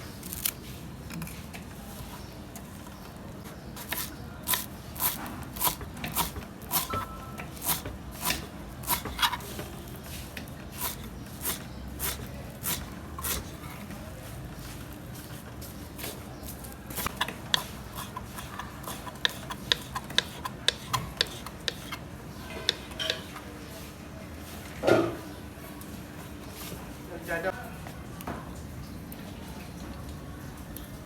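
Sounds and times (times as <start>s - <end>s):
kitchen utensil scraping strokes: 3.8s - 13.8s, 16.9s - 23.2s.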